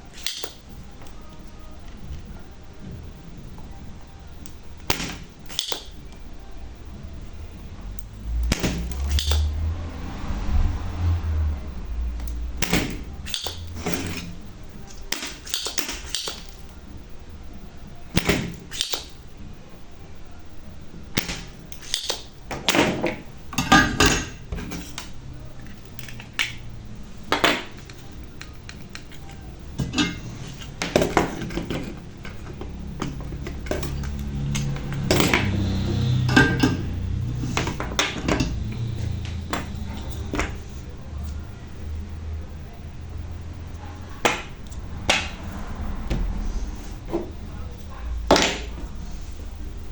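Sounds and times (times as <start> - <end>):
low background hum: 0.0 - 49.9
hand tools clicking and knocking: 27.3 - 40.6.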